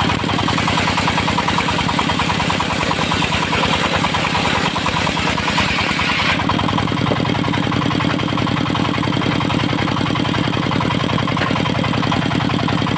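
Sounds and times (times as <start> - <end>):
diesel engine chugging: 0.0 - 12.9.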